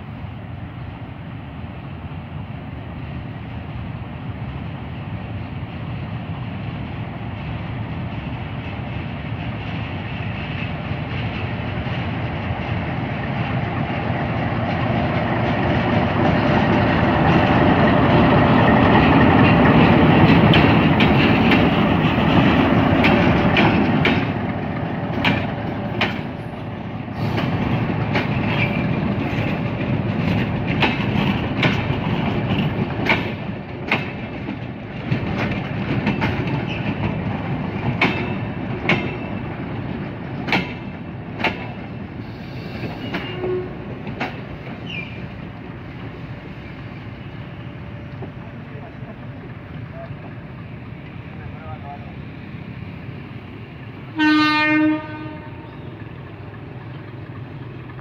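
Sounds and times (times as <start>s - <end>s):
diesel locomotive engine: 0.0s - 58.0s
wheels clicking over rail joints: 8.2s - 42.0s, 42.7s - 46.2s.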